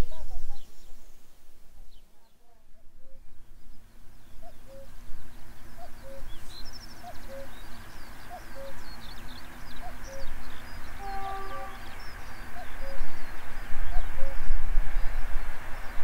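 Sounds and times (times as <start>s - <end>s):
songbirds chirping: 0.0s - 16.0s
bird two-note call: 11.0s - 12.0s
horn-like note: 11.0s - 12.0s.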